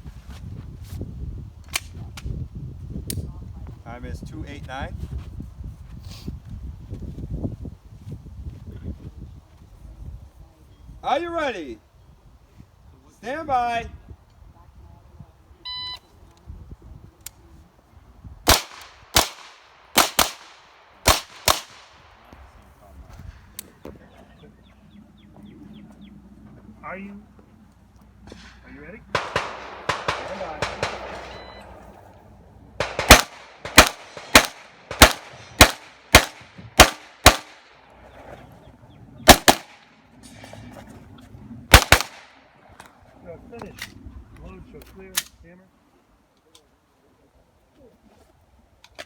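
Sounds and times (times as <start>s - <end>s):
gunshots with ringing echo: 18.5s - 22.0s, 28.4s - 31.8s, 32.8s - 37.7s, 39.3s - 39.9s, 41.7s - 42.4s
shot timer beep: 31.3s - 31.8s.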